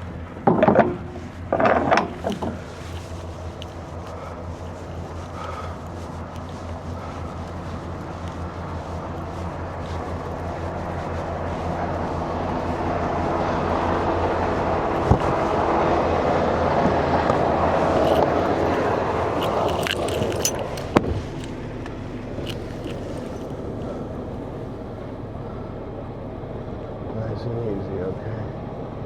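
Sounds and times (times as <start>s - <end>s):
diesel truck engine idling: 0.0s - 29.0s
rushing swell of passing traffic: 3.3s - 19.9s
metallic jingling: 17.6s - 21.6s, 22.4s - 23.6s.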